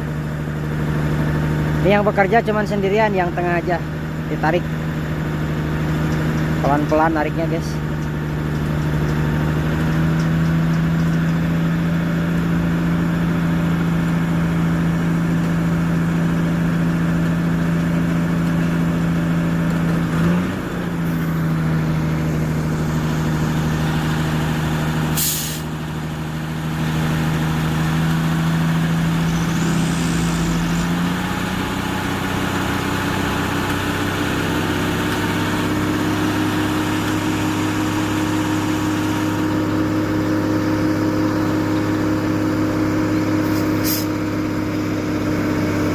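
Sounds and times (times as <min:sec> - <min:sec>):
tow truck engine running: 0:00.0 - 0:45.9
sharp hiss of air: 0:25.1 - 0:25.7, 0:43.4 - 0:44.2.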